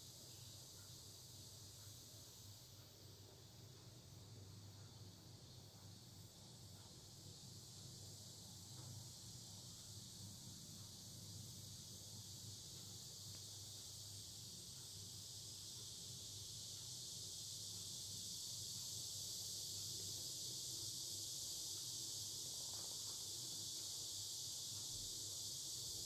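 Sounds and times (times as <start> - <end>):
cicadas buzzing: 16.4 - 26.0.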